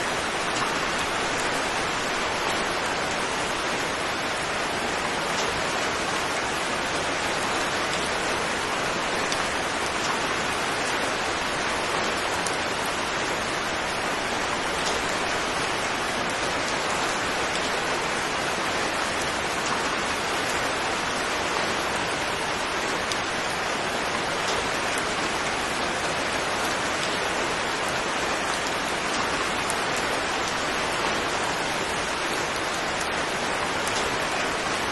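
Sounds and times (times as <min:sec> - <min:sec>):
steady rain falling: 0:00.0 - 0:34.9
raindrop ticks: 0:14.4 - 0:15.1.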